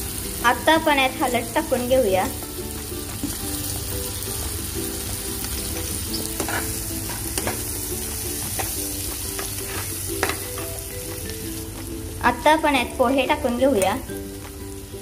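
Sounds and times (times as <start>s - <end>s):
vegetables sizzling in oil: 0.0s - 15.0s
spatula scraping a pan: 5.7s - 10.8s.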